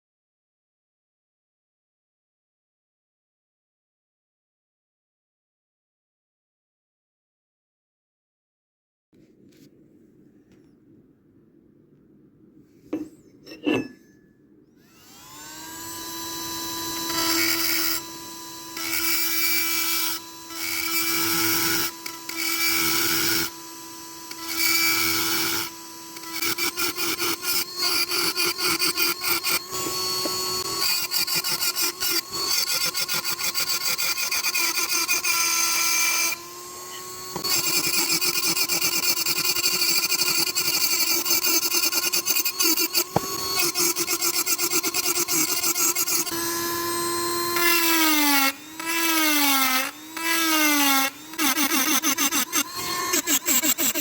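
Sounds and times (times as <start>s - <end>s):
power tool motor running: 14.8s - 54.0s.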